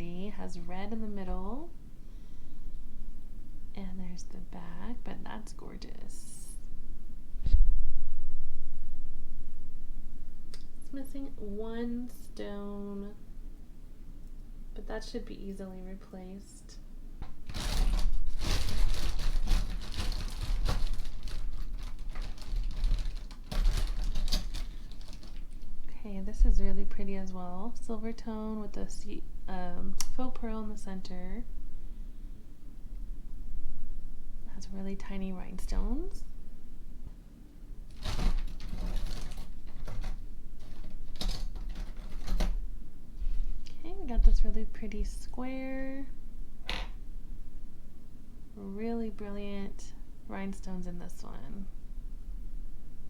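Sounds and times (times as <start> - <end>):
jewelry clicking and clattering: 17.2 - 25.8
rustling: 17.2 - 27.9, 35.6 - 44.4.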